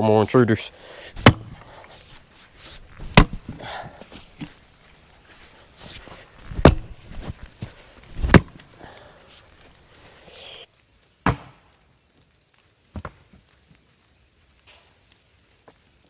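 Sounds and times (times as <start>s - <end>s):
firewood knocking together: 0.8s - 9.8s.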